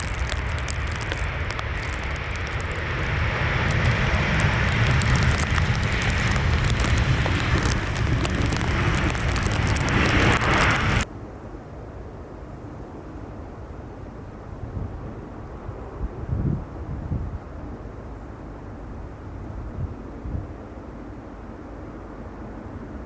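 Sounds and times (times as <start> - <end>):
jet airliner passing: 0.0 - 11.1.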